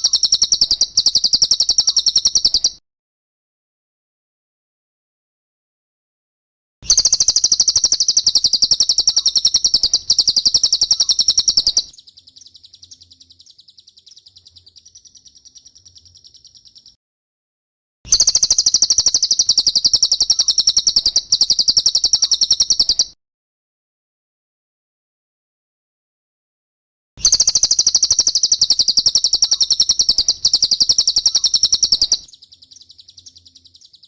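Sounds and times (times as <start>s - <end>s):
bird high-pitched trill: 0.0s - 2.8s, 6.8s - 17.0s, 18.1s - 23.2s, 27.2s - 34.0s.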